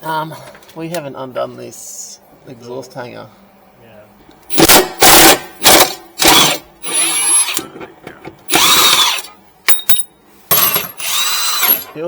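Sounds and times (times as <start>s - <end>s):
impact wrench bursts: 4.5s - 7.7s, 8.5s - 12.0s.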